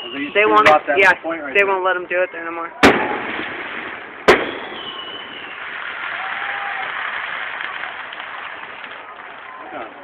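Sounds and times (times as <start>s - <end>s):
fireworks show noise: 0.0s - 10.0s
firework shell bang: 2.8s - 6.8s.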